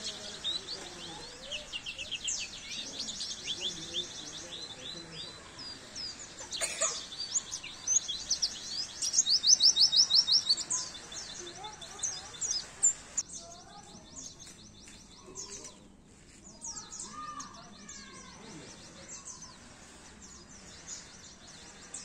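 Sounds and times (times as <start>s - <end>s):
white-eye bird twittering: 0.0s - 13.2s.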